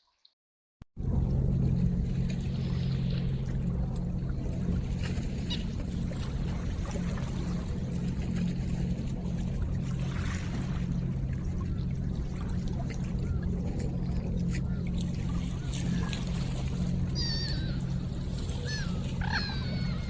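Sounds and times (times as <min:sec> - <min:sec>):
steady low hum: 0:01.0 - 0:20.0
river water running: 0:01.6 - 0:20.0.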